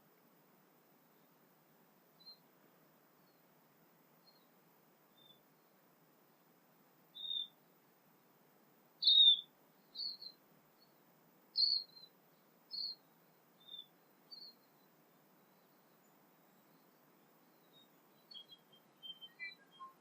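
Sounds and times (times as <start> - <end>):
bird chirping: 2.1 - 2.5, 3.2 - 3.5, 4.2 - 6.5, 7.1 - 7.7, 9.0 - 20.0.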